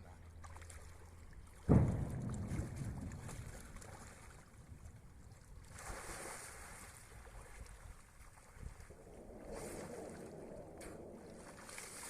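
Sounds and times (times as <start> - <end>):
water churning and sloshing: 0.0 - 12.0
person splashing into water: 1.8 - 4.6, 5.6 - 8.9, 11.4 - 12.0.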